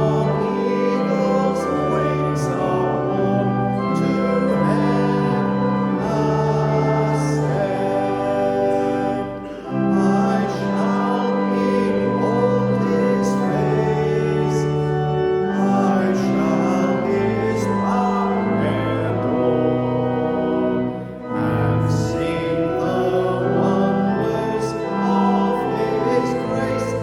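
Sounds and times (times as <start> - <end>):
congregation singing: 0.0 - 27.0
pipe organ playing hymn: 0.0 - 27.0.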